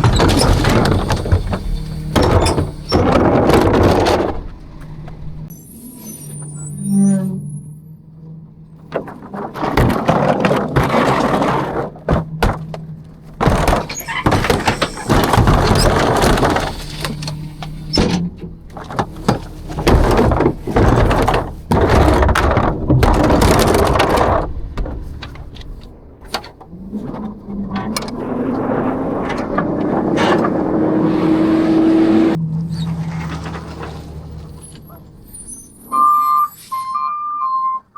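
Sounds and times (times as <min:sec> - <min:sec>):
metal crashes and falling trash: 0:00.0 - 0:05.5, 0:08.7 - 0:30.8, 0:32.8 - 0:35.4
truck engine and hydraulics: 0:00.0 - 0:37.9.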